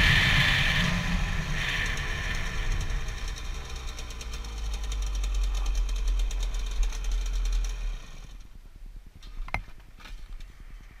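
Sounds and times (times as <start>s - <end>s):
two-stroke motorcycle engine: 0.0s - 8.5s.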